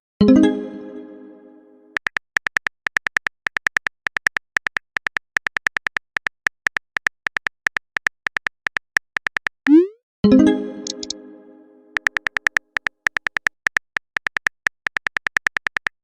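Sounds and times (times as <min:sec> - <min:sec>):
phone keyboard tapping: 0:02.0 - 0:09.6, 0:12.0 - 0:16.0.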